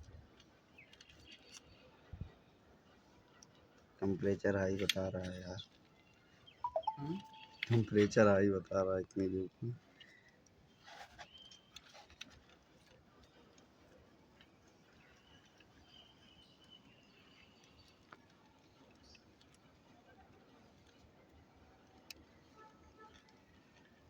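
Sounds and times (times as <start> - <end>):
faint high tone: 6.7 - 7.8.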